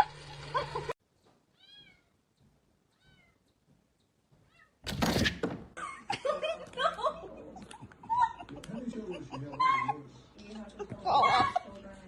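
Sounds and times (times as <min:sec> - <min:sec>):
cat meowing faintly: 0:01.5 - 0:02.2, 0:02.9 - 0:03.4.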